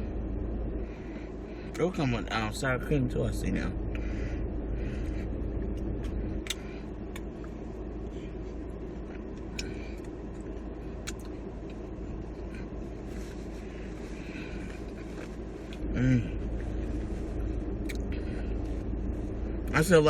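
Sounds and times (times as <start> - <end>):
steady low rumble: 0.0 - 20.0
person chewing: 5.0 - 7.6, 9.0 - 18.8.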